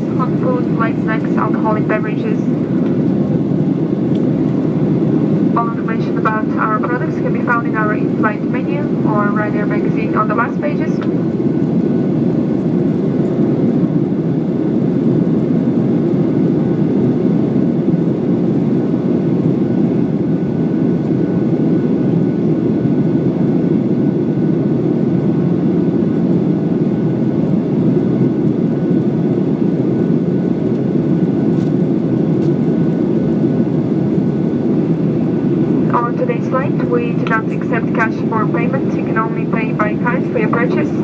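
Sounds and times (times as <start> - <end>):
jet engines and airflow rushing: 0.0 - 41.0
faint steady whine: 34.2 - 41.0.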